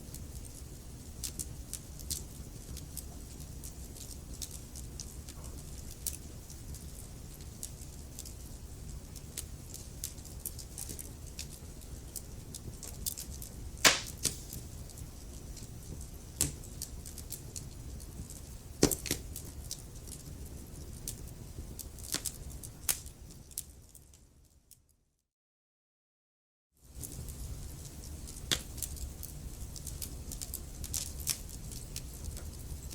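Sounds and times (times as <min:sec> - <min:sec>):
wood fire crackling: 0:00.0 - 0:24.2, 0:26.9 - 0:32.9
sharp pops of burning logs: 0:13.8 - 0:14.7.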